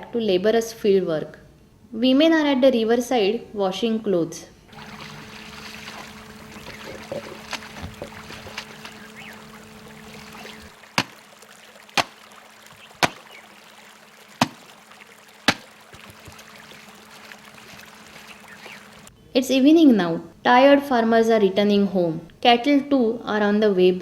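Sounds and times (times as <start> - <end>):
steady low hum: 4.6 - 12.4
flowing river water: 4.7 - 19.1
wet clothes slapping on stone: 4.8 - 18.8.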